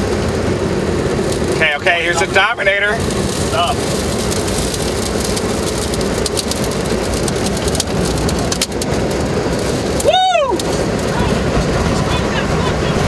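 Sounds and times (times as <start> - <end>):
heavy rain pounding a vehicle: 0.0 - 13.0
raindrops ticking on glass: 3.0 - 11.3.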